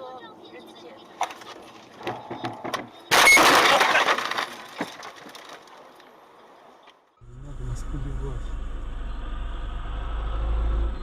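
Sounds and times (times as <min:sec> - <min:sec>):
vehicle crash: 0:03.1 - 0:05.9.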